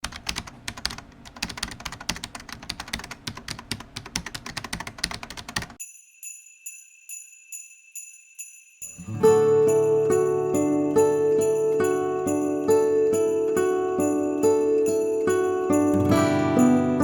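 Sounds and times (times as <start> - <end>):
keyboard typing: 0.0 - 5.8
high bell-like tinkle: 5.8 - 17.0.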